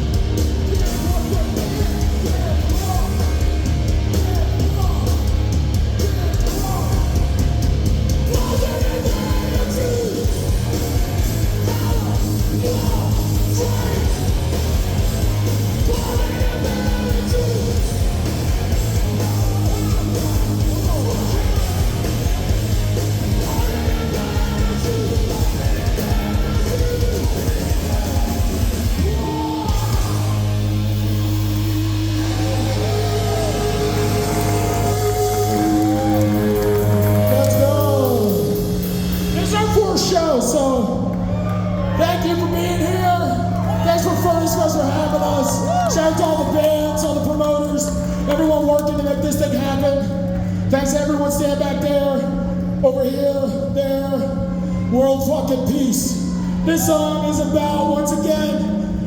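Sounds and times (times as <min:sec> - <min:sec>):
fast pounding drums: 0:00.0 - 0:41.0
distorted guitars: 0:00.0 - 0:59.0
heavy bass: 0:00.0 - 0:59.0
vocalist yelling and screaming: 0:08.2 - 0:10.5, 0:11.3 - 0:14.6, 0:23.4 - 0:30.6, 0:31.6 - 0:38.7, 0:39.4 - 0:59.0.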